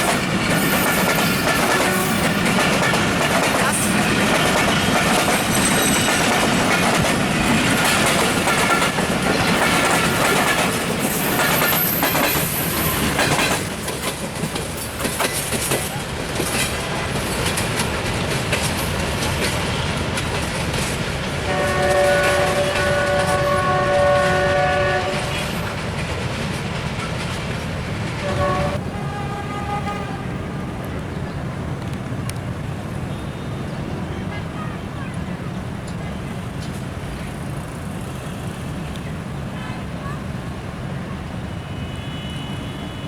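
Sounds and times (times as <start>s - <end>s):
train wheels clattering: 0.0s - 28.8s
locomotive horn: 21.4s - 25.6s, 28.2s - 30.7s, 41.5s - 43.0s.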